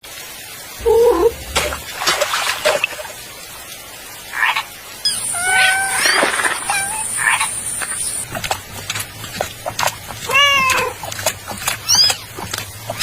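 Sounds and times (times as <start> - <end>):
cartoon animal-like calls: 0.8 - 1.8, 5.1 - 7.6.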